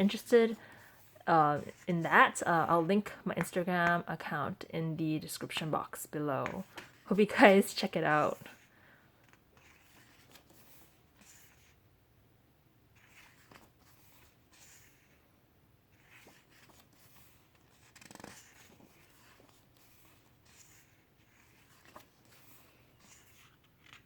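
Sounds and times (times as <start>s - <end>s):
glossy paper pages turning: 6.4s - 7.1s, 8.4s - 11.8s, 12.9s - 15.2s, 15.9s - 24.0s.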